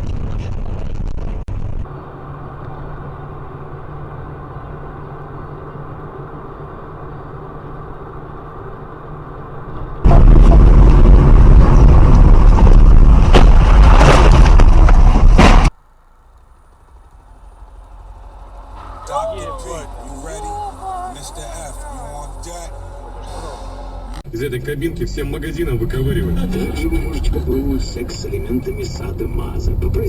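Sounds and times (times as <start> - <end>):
vehicle engine hum: 1.0 - 30.0
loud distorted rumble: 9.8 - 30.0.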